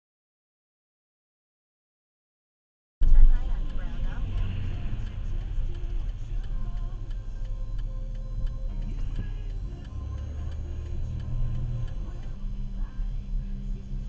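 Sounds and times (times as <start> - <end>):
engine and road rumble: 3.0 - 14.0
turn signal ticking: 3.0 - 14.0.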